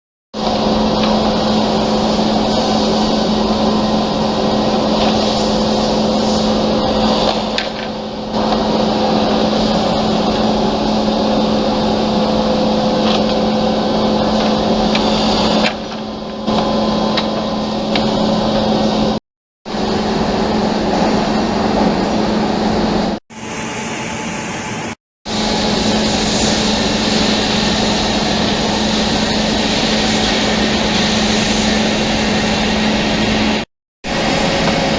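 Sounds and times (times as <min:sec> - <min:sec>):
held tone: 0:23.3 - 0:25.0.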